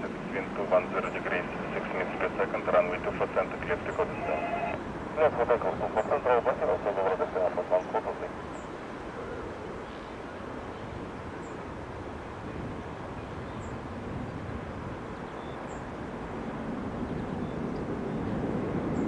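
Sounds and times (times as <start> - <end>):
jet airliner engine rumble: 0.0 - 8.4.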